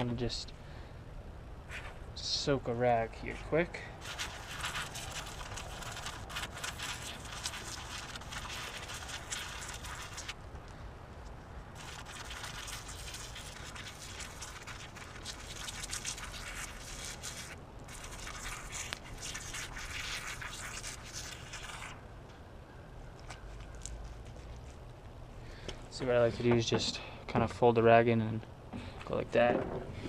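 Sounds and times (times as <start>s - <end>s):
rag scratchy hissing and rustling: 4.0s - 10.4s, 11.8s - 22.0s.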